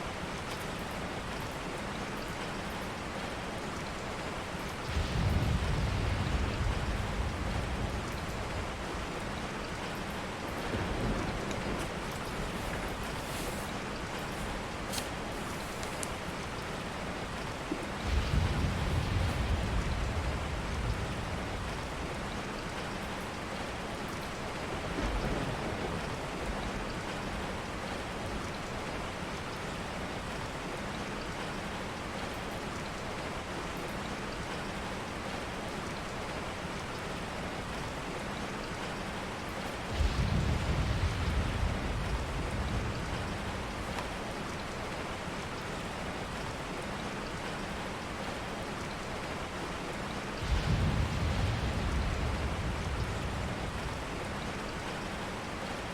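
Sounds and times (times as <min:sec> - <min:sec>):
steady rain falling: 0:00.0 - 0:55.9
thunder rumbles: 0:04.8 - 0:14.8, 0:17.4 - 0:28.2, 0:39.8 - 0:45.2, 0:50.2 - 0:55.9.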